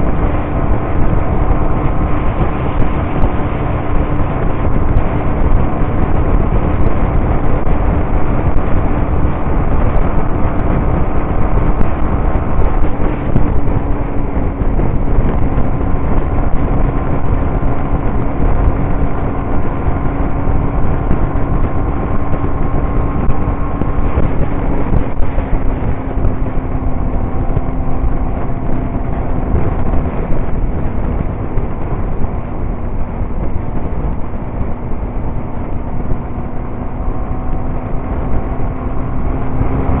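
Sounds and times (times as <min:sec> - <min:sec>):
motorcycle engine cruising: 0:00.0 - 0:40.0
wind rush over microphone: 0:00.0 - 0:40.0.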